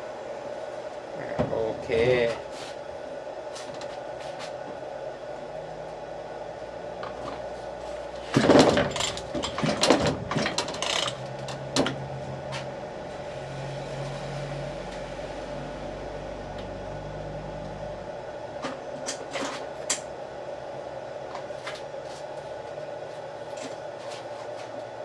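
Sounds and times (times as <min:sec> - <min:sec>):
pull-starter rattling: 0:08.2 - 0:12.0.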